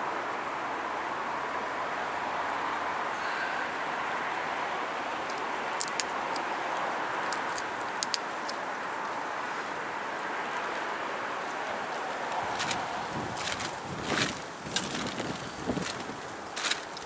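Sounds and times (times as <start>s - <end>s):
sharp stone clicks: 5.3s - 6.5s, 7.2s - 8.6s.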